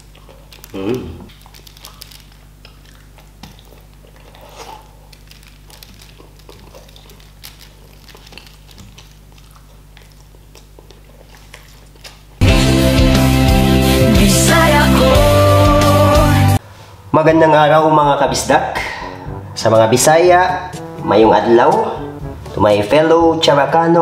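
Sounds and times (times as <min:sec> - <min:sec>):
chewing with wet smacks: 0:00.0 - 0:12.4.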